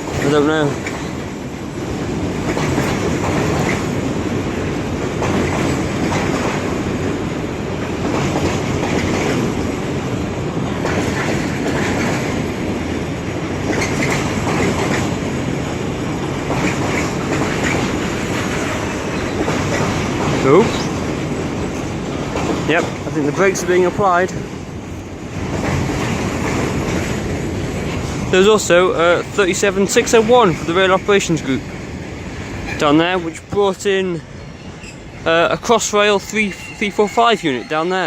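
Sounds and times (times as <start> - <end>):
freight train rumbling past: 0.0 - 38.0
wheel clatter over rail joints: 0.0 - 38.0
train wheel squeals: 18.6 - 21.1, 34.4 - 38.0.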